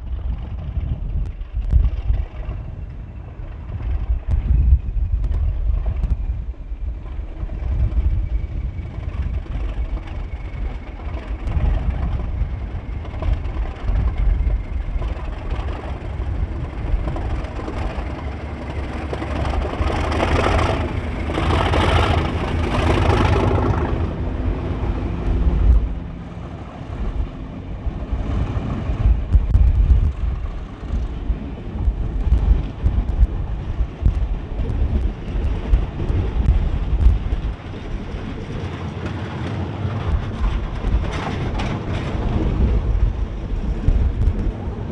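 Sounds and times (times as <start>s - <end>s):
diesel locomotive engine working hard: 0.0s - 44.9s
wind buffeting microphone: 0.0s - 44.9s.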